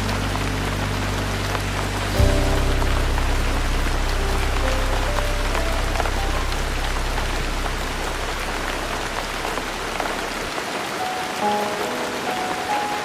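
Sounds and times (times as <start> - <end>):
soft instrumental ballad: 0.0 - 9.8
low bass tone: 0.0 - 10.5
rain pattering: 0.0 - 13.0.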